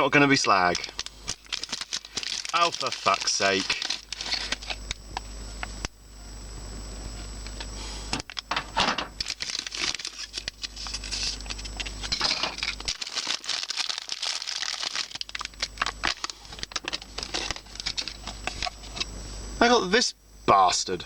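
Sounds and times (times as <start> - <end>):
packaging crinkling and tearing: 0.4 - 5.0, 9.2 - 19.0.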